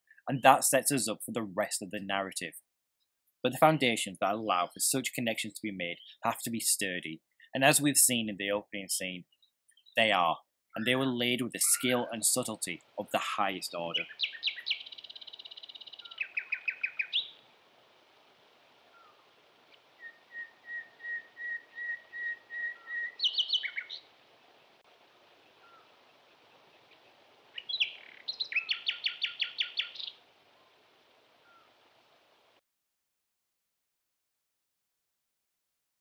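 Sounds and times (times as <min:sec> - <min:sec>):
small birds chirping: 0:05.8 - 0:06.4, 0:09.2 - 0:17.5, 0:18.8 - 0:24.2, 0:25.3 - 0:30.8, 0:31.4 - 0:31.8.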